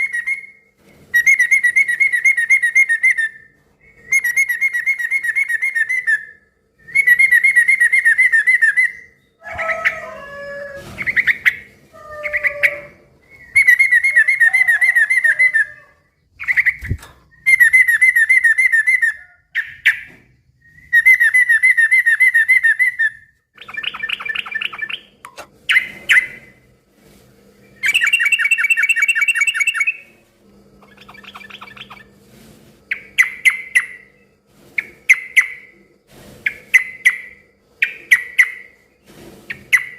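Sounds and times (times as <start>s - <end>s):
low gliding bird calls: 0.0s - 26.7s, 27.5s - 32.2s
bird chattering song: 11.0s - 20.1s, 20.9s - 26.6s, 27.6s - 30.1s, 30.8s - 32.1s, 32.9s - 35.7s, 36.4s - 38.8s.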